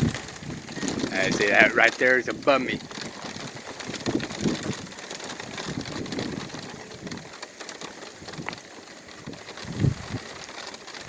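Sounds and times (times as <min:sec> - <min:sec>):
thunder rumbles: 0:00.0 - 0:07.2
rain hissing: 0:00.0 - 0:11.0.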